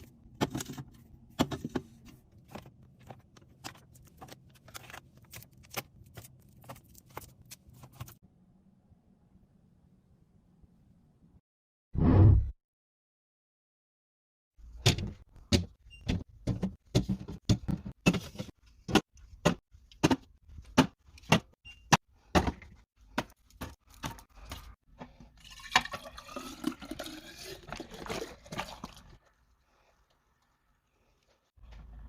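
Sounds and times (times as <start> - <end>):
liquid pouring into container: 25.4 - 29.2.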